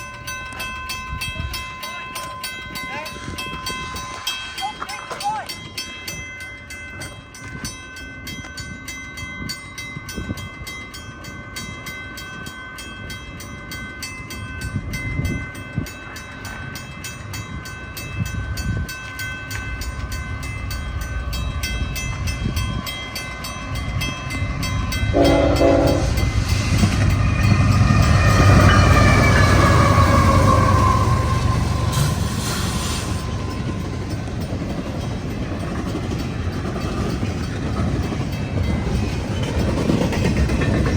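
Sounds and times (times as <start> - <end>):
train rumble: 0.0 - 40.9
train horn: 25.1 - 26.4, 28.0 - 33.3.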